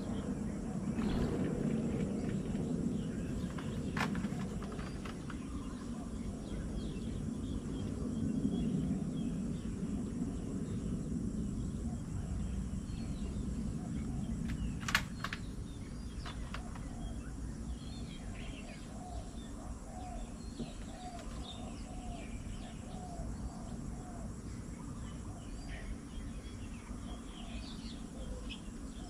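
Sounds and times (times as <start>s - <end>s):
steady low rumble: 0.0s - 20.2s
small birds chirping: 0.0s - 29.0s.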